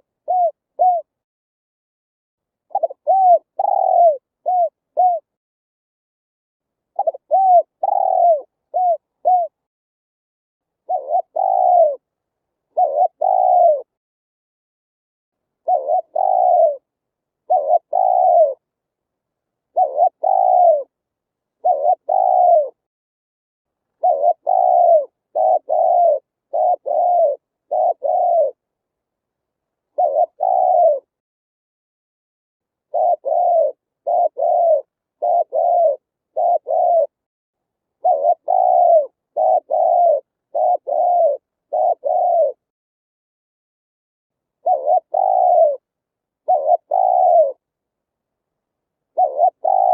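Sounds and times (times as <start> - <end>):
dove cooing: 0.0 - 1.2, 2.7 - 5.3, 7.0 - 9.6, 10.8 - 12.1, 12.7 - 14.0, 15.6 - 18.6, 19.7 - 21.0, 21.6 - 22.8, 24.0 - 28.6, 29.9 - 31.2, 32.9 - 37.2, 38.0 - 42.7, 44.6 - 47.6, 49.1 - 49.9.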